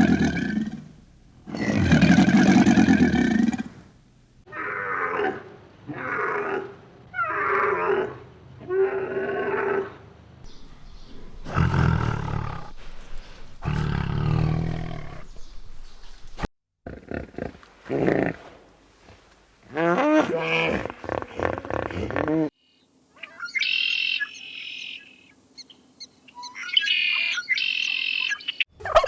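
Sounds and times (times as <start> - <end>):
deep animal calls: 10.5 - 17.0, 26.4 - 29.0
animal pitched cries: 26.4 - 29.0.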